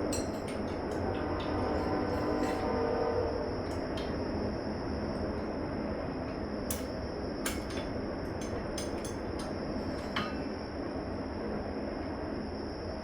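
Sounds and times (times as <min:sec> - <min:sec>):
train rumbling past: 0:00.0 - 0:08.8.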